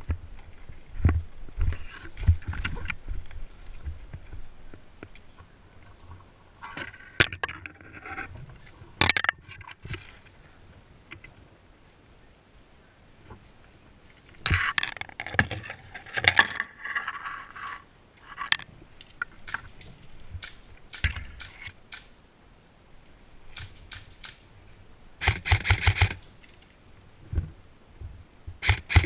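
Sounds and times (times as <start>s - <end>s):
sharp clicks and crackles: 14.4s - 22.1s, 23.5s - 26.8s, 28.6s - 29.0s.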